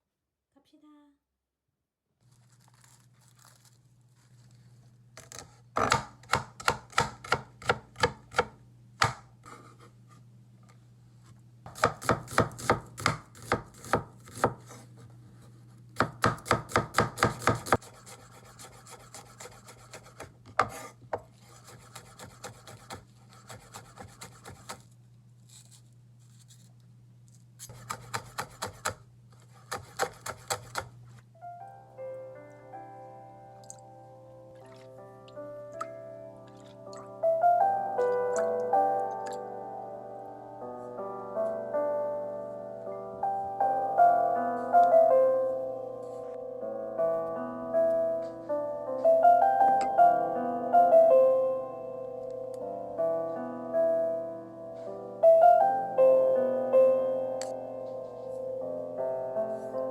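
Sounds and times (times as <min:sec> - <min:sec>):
knife chopping vegetables on board: 0:05.2 - 0:09.7, 0:11.7 - 0:14.8, 0:16.0 - 0:24.8, 0:27.6 - 0:30.9.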